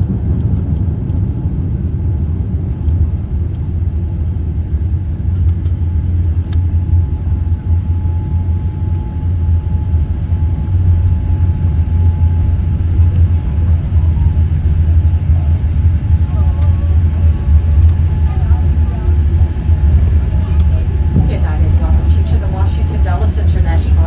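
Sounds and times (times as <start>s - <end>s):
airplane cabin rumble: 0.0s - 24.0s.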